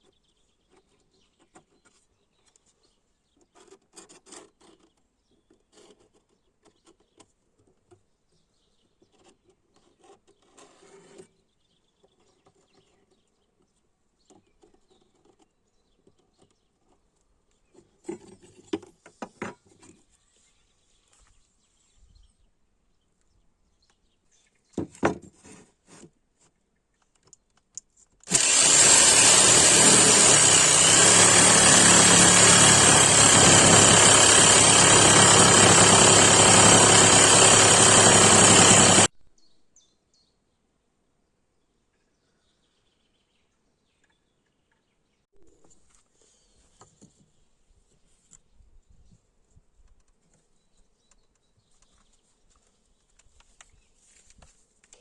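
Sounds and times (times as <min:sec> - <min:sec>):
power tool running: 0:28.2 - 0:39.1.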